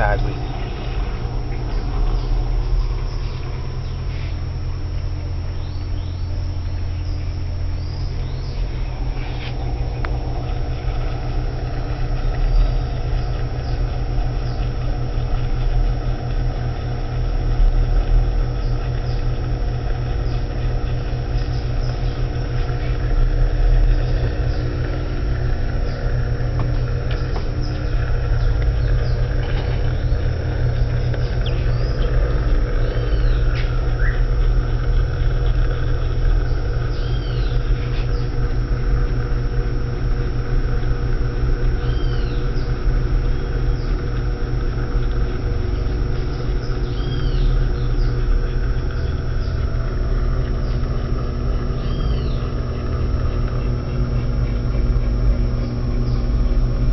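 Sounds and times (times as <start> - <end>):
washing machine motor hum: 0.0 - 56.9.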